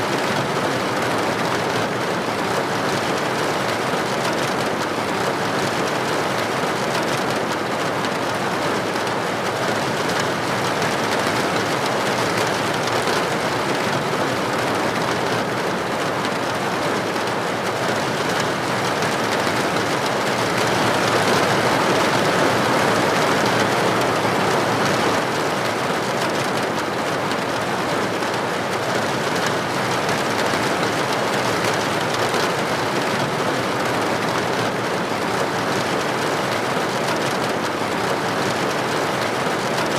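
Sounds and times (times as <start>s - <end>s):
rain falling: 0.1s - 39.9s.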